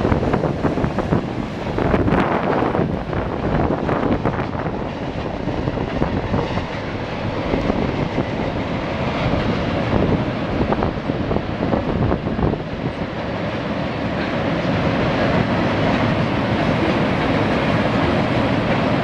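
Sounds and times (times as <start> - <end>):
train wheels rumbling on rail: 0.0 - 19.0
wind buffeting microphone: 0.0 - 19.0.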